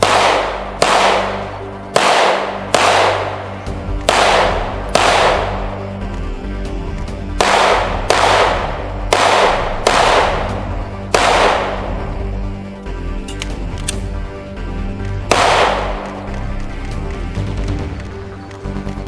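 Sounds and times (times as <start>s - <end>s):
echoing gunshots: 0.0s - 6.0s, 7.3s - 12.3s, 15.2s - 16.4s.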